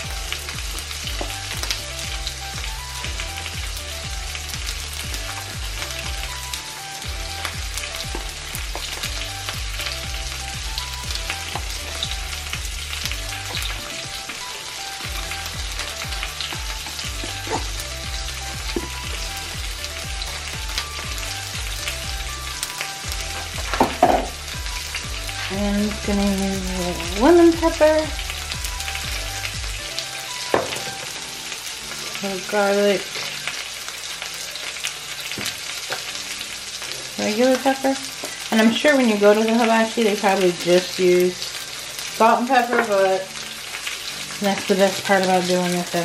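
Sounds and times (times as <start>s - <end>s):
background music with bass line: 0.0s - 31.6s
chicken sizzling in frying pan: 0.0s - 46.0s.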